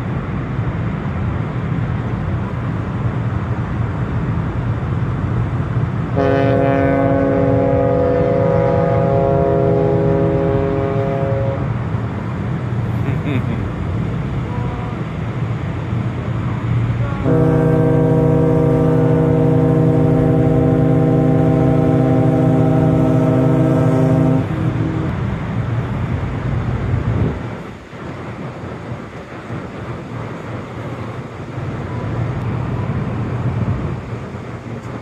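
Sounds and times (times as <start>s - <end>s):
deep ship horn blast: 6.1s - 11.9s, 17.0s - 25.9s
wind noise on microphone: 16.0s - 35.0s.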